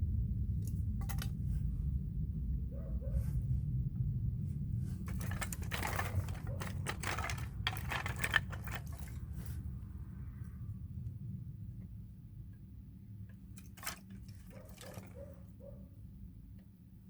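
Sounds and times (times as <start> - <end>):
low rumble: 0.0 - 13.3
firewood knocking and clattering: 1.0 - 1.4, 5.0 - 9.5.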